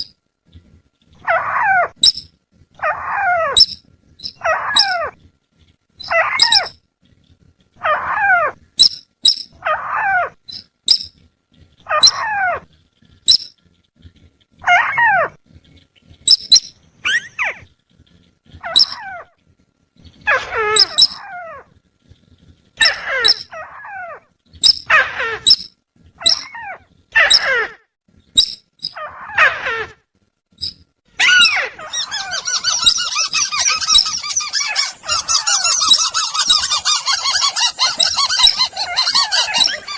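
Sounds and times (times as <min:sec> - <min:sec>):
harsh chattering bird call: 0:30.6 - 0:39.9.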